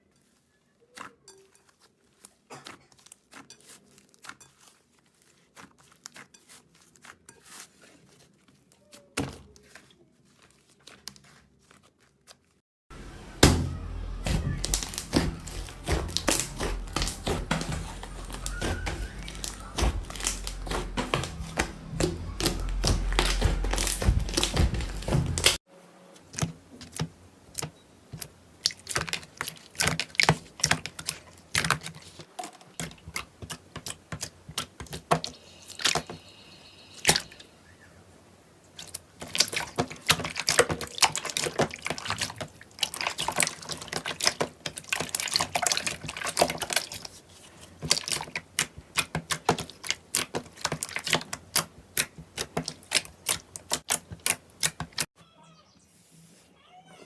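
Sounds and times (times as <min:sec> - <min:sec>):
slime crackling and popping: 0:14.2 - 0:25.6.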